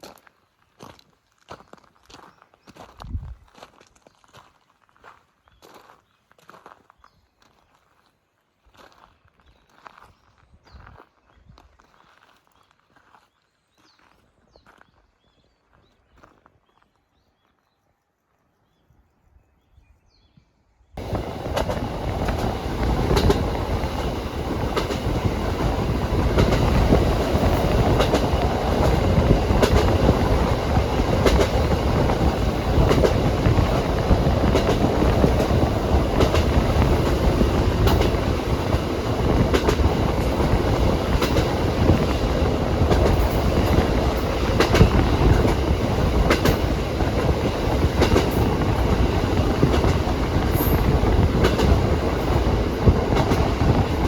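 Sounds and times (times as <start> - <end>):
train rumble: 21.0 - 54.0
train wheels clicking over rails: 21.0 - 54.0.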